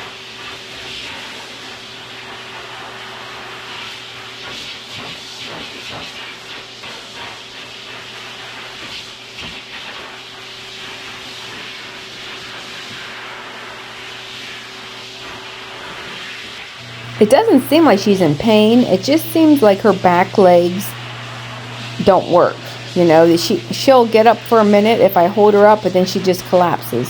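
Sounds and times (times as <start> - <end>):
blow dryer blasting air: 16.8 - 27.0
low motor hum: 16.8 - 27.0.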